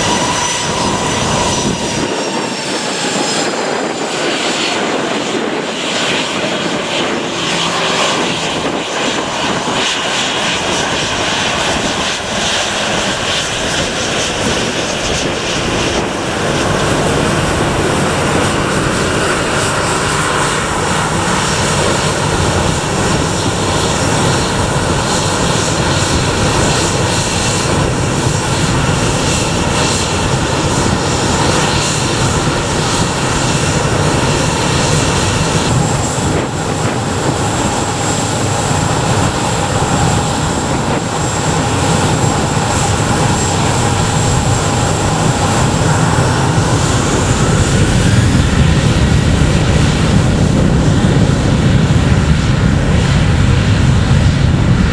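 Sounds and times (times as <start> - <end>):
airliner engines running loud: 0.0 - 54.9.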